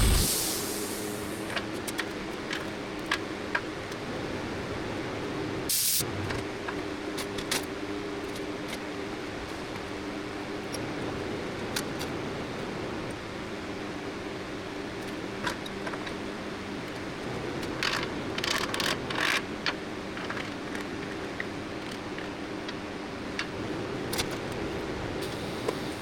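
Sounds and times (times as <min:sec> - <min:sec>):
sharp hiss: 0:00.0 - 0:01.6, 0:05.7 - 0:06.0
steady machine hum: 0:00.0 - 0:01.6.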